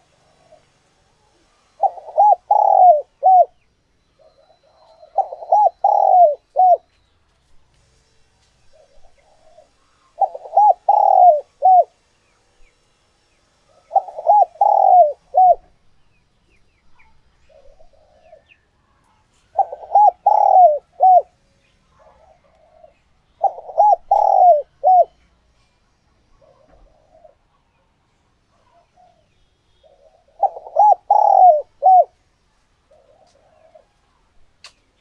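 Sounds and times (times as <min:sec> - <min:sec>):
dove cooing: 0:01.8 - 0:03.6, 0:04.2 - 0:06.9, 0:08.7 - 0:12.0, 0:13.7 - 0:15.7, 0:17.5 - 0:18.5, 0:19.5 - 0:21.4, 0:22.0 - 0:25.2, 0:26.4 - 0:27.5, 0:29.8 - 0:32.2, 0:32.9 - 0:34.0.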